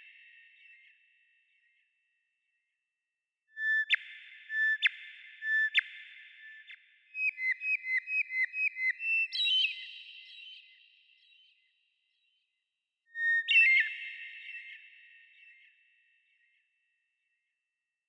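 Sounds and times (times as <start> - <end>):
bird whistling song: 3.6 - 12.4, 13.1 - 15.8.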